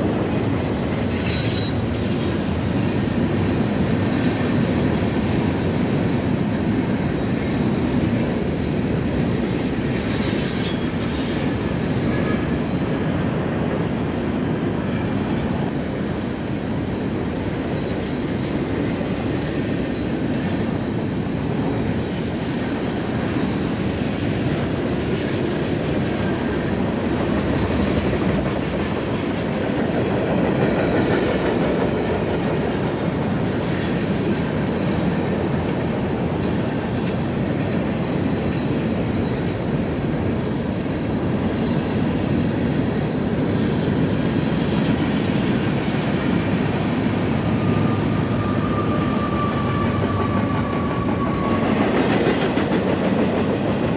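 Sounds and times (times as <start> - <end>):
train wheels running on rails: 0.0 - 53.9
thin wheel squeal: 35.8 - 37.1.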